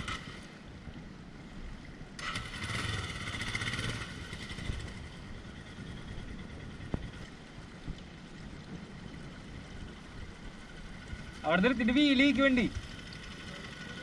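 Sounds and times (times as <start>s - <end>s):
motorcycle engine revving: 0.0s - 0.5s, 2.2s - 7.2s.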